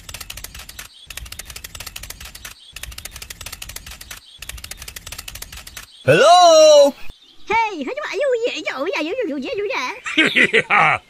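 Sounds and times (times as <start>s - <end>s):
fast even clicking: 0.0s - 5.9s.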